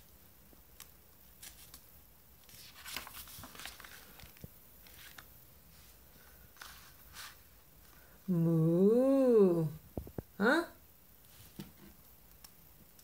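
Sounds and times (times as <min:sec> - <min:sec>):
faint rustling: 0:02.4 - 0:08.2.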